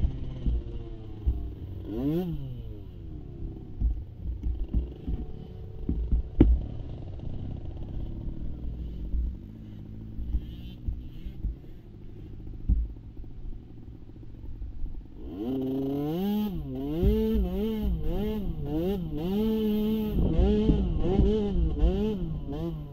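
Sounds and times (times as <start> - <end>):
atv engine revving: 0.0 - 22.9
knocks and thumps: 3.7 - 6.7, 12.6 - 13.0.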